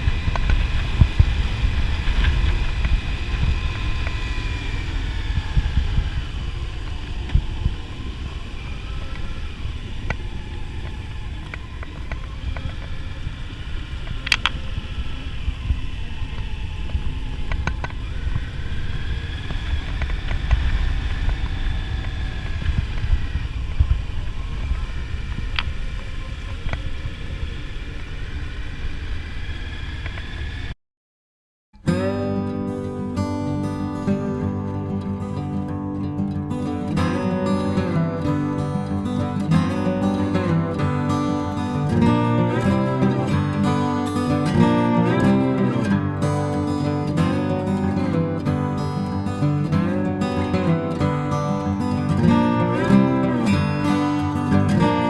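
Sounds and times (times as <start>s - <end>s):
motorcycle engine and road rumble: 0.0s - 30.7s.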